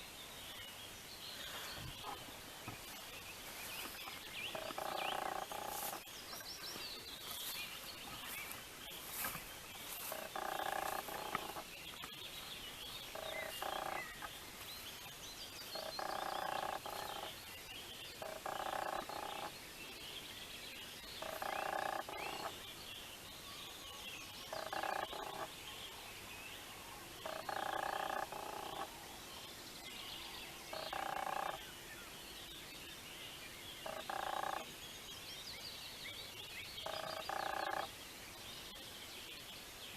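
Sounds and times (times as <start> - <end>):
frog croaking: 4.5 - 6.1, 9.9 - 11.7, 13.1 - 14.3, 15.8 - 17.3, 18.2 - 19.5, 21.2 - 22.5, 24.4 - 25.5, 27.2 - 29.0, 30.7 - 31.6, 33.8 - 34.7, 36.8 - 37.9.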